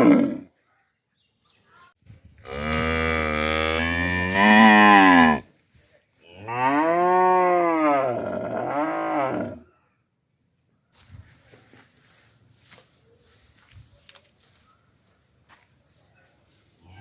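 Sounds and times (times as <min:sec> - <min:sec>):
cow mooing: 0:02.5 - 0:05.4, 0:06.4 - 0:09.6.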